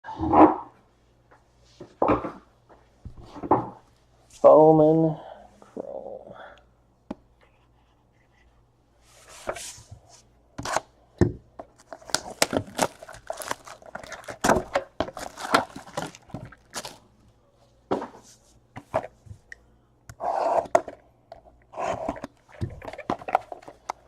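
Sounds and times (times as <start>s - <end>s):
packaging tearing and crinkling: 11.8s - 17.1s.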